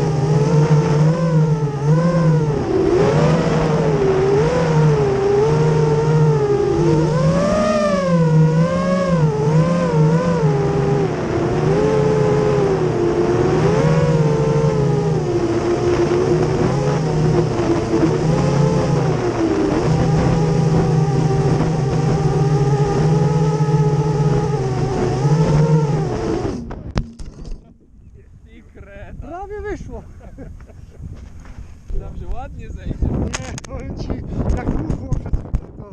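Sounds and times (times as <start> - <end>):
drone motors whining: 0.0 - 28.3
wind on microphone: 0.0 - 35.9.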